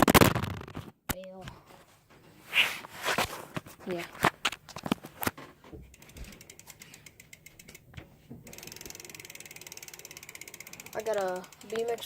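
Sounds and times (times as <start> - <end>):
bike hub ratcheting clicks: 5.9 - 12.0.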